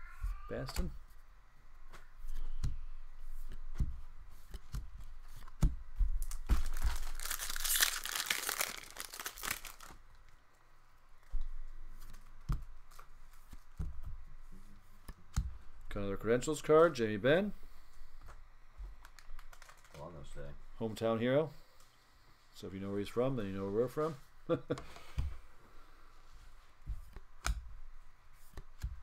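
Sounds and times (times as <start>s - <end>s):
wrapper tearing and crinkling: 6.2s - 10.0s, 19.2s - 20.0s
cards tapping and rustling: 18.2s - 20.1s.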